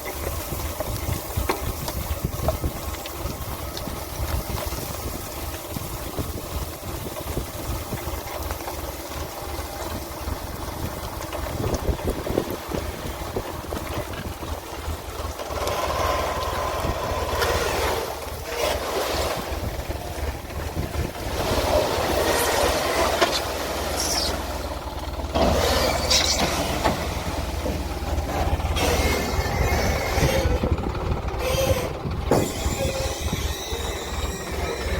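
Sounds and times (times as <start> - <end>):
diesel engines running under load: 0.0 - 34.9
short scraping bursts: 28.2 - 34.9.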